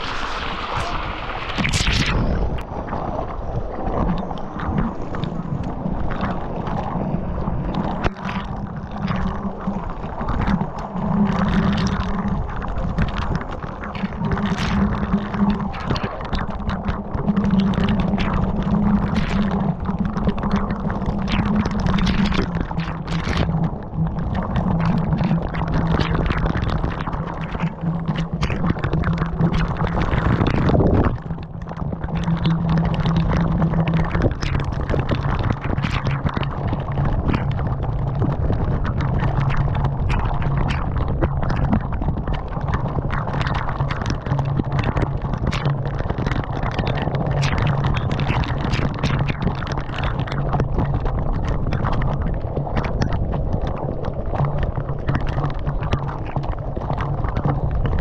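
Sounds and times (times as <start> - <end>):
waterfall rushing and crackling: 0.0 - 3.0
low steady hum: 0.0 - 58.0.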